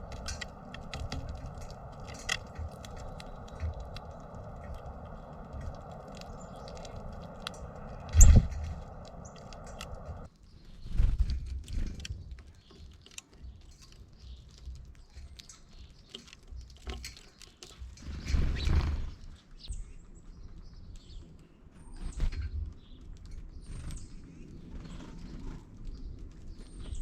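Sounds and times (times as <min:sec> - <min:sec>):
low rumbling: 0:00.0 - 0:10.3
small birds chirping: 0:00.0 - 0:27.0.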